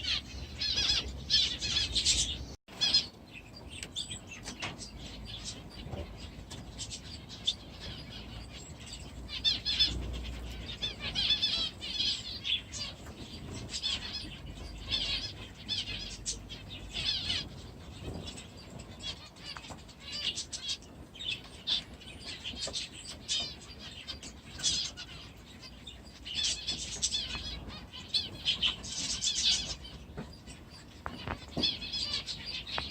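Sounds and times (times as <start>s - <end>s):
small birds chirping: 0.0s - 32.9s
wings fluttering: 26.3s - 32.9s.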